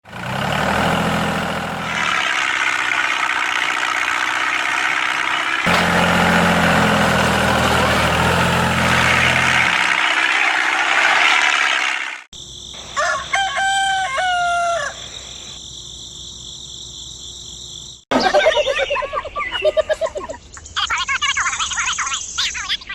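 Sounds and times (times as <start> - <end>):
engine running: 0.0 - 11.2
rooster crowing: 12.8 - 15.5.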